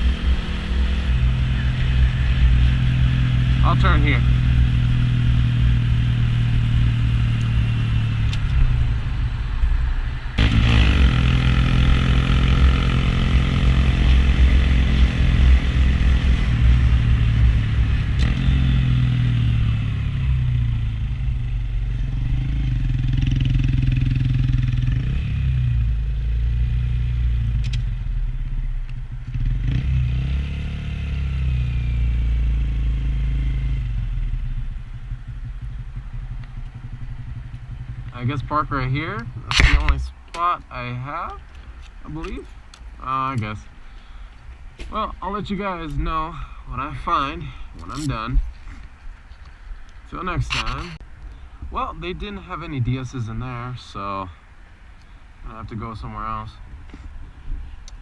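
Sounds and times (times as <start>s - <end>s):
motorcycle engine accelerating: 0.0s - 40.1s.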